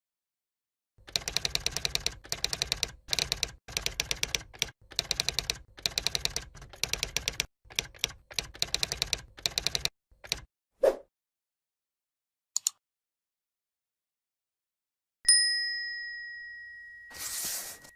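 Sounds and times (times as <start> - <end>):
typewriter keystroke clicks: 1.1 - 10.5.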